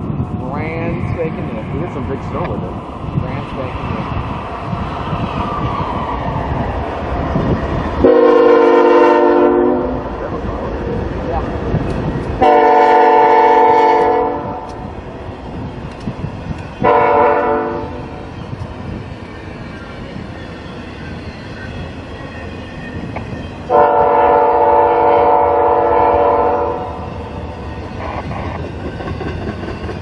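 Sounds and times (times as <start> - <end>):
train rumbling: 0.0 - 30.0
locomotive air horn blasts: 8.0 - 10.0, 12.4 - 14.6, 16.8 - 18.0, 23.7 - 26.9.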